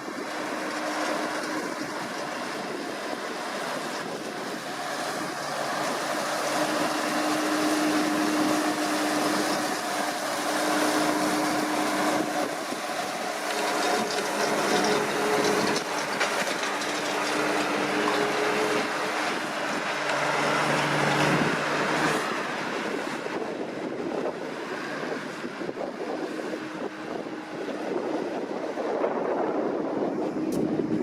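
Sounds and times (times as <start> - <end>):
rotary rake mechanical rush: 0.0 - 31.0
tractor diesel engine running: 0.0 - 31.0.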